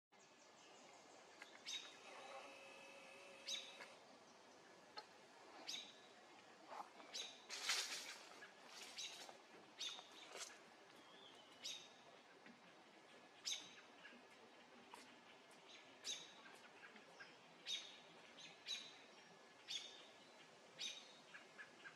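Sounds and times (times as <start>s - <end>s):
faint bird chirps: 0.2s - 4.0s.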